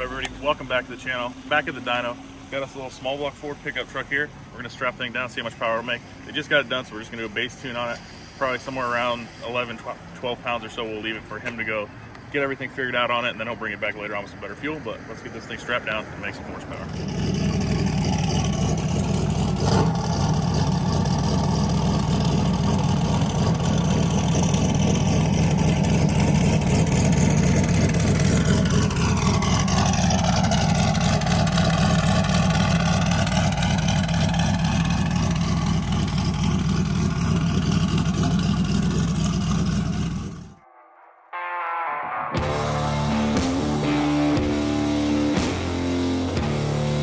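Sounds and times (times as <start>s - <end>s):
pickup engine running: 16.7s - 40.6s, 42.4s - 47.0s
turbo whine: 16.8s - 40.8s, 42.4s - 47.0s.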